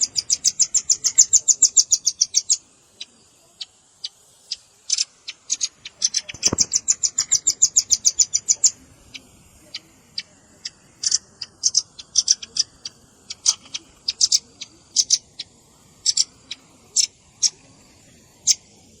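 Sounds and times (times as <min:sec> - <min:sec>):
bird chips: 0:00.0 - 0:19.0
bird trill: 0:00.0 - 0:19.0.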